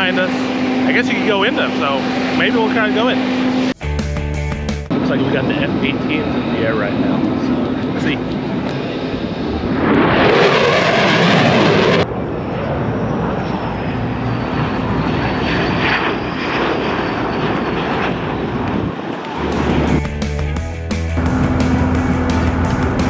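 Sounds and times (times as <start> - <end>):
fighter jets roaring overhead: 0.0 - 3.8, 4.9 - 20.0, 21.2 - 23.0
jet rumble: 0.0 - 3.8, 4.6 - 20.1, 21.0 - 23.0
high whine falling in pitch: 21.2 - 23.0.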